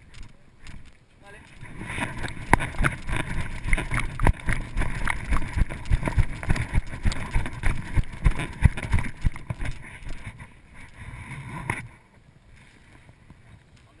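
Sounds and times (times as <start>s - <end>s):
gear rattling: 0.0s - 11.0s.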